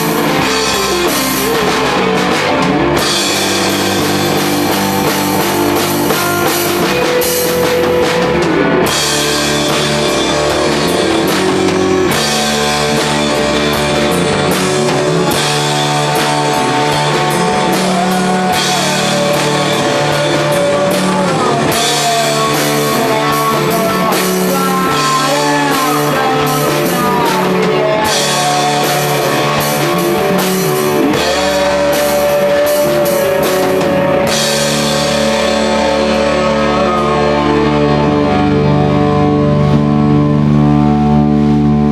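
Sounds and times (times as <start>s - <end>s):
drum kit with cymbals: 0.0s - 40.6s
electric lead guitar bending notes: 0.0s - 41.9s
psychedelic rock band playing: 0.0s - 41.9s.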